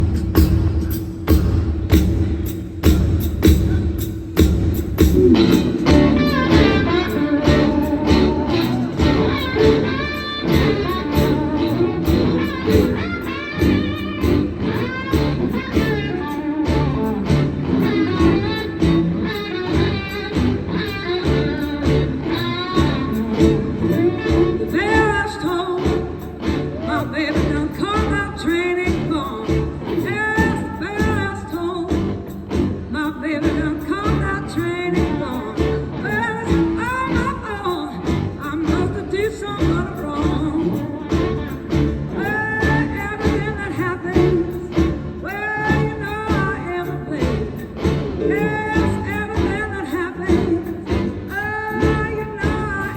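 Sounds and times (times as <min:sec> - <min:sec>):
bass: 0:00.0 - 0:52.9
drums: 0:00.0 - 0:52.9
electric guitar lead: 0:04.6 - 0:52.9.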